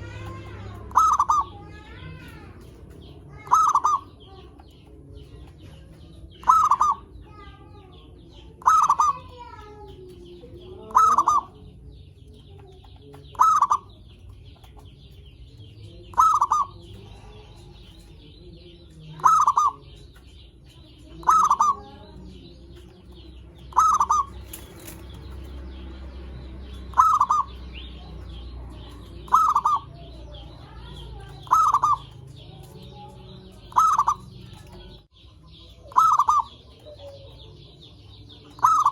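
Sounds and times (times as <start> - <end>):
dove cooing: 0.0 - 4.8, 6.3 - 7.2, 8.6 - 9.5, 10.7 - 11.7, 13.3 - 14.0, 16.1 - 17.5, 19.1 - 20.0, 21.1 - 22.4, 23.2 - 25.2, 26.9 - 35.0, 35.9 - 38.9.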